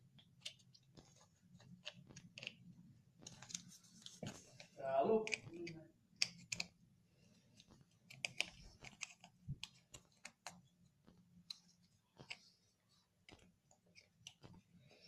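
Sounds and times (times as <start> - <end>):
plastic objects clicking: 0.2 - 3.7, 5.2 - 6.8, 7.6 - 10.6.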